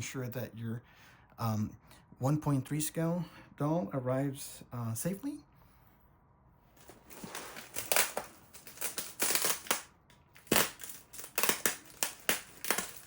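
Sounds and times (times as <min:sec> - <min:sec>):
plastic packing crinkling: 0:06.8 - 0:13.0.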